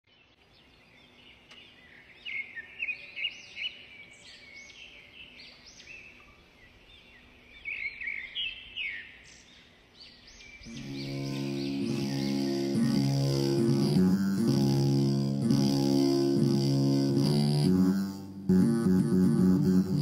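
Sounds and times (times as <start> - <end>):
birds chirping and singing: 0.2 - 15.1.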